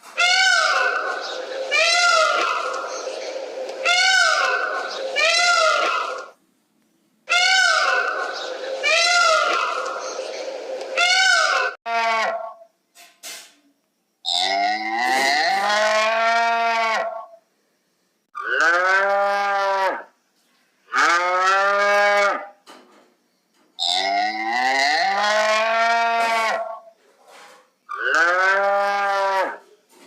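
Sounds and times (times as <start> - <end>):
cow mooing: 28.0 - 29.6.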